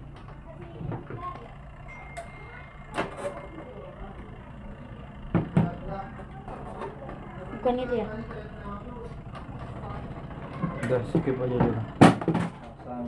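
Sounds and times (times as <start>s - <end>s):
steady low hum: 0.0s - 13.0s
machine parts knocking and clattering: 10.4s - 12.9s.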